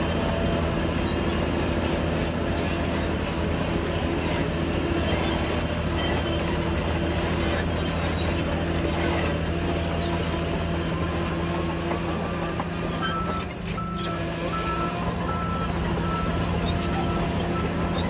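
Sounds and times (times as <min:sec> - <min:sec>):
diesel machinery humming: 0:00.0 - 0:18.0
reversing alarm beeps: 0:12.8 - 0:18.0.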